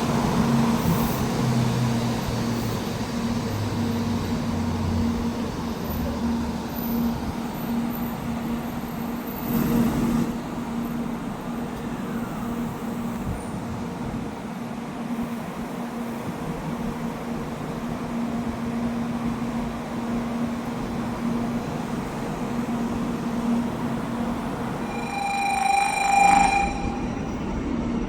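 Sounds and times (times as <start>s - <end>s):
low droning tone: 24.9s - 27.3s.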